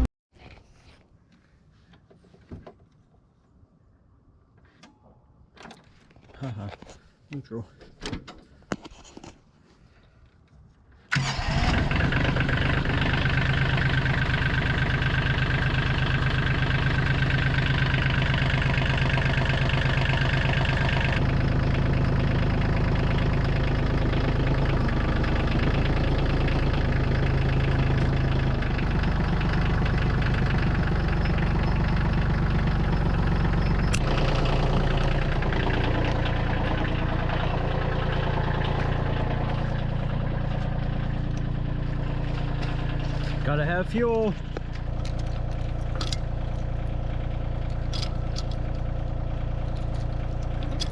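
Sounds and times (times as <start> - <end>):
engine starting and running: 11.0 - 50.9.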